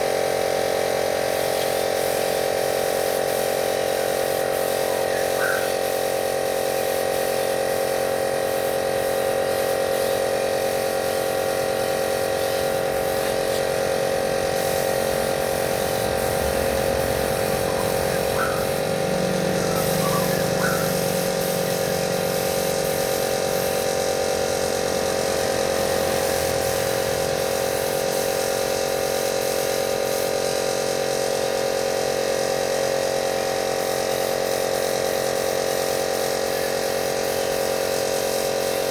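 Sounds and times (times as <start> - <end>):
spray equipment motor hum: 0.3 - 29.2.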